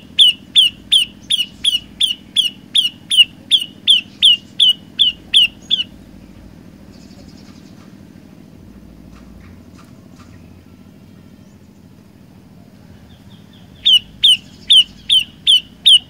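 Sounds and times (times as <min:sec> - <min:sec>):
bird calling sharp notes: 0:00.0 - 0:06.1, 0:13.2 - 0:16.0
faint low hum: 0:00.0 - 0:16.0.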